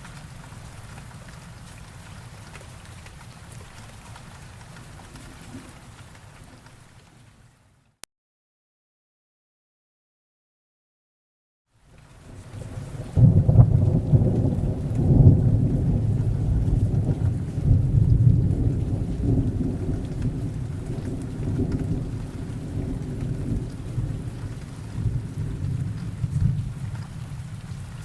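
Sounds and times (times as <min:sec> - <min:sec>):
steady rain: 0:00.0 - 0:08.0, 0:11.7 - 0:28.0
thunder rumbling: 0:12.4 - 0:28.0.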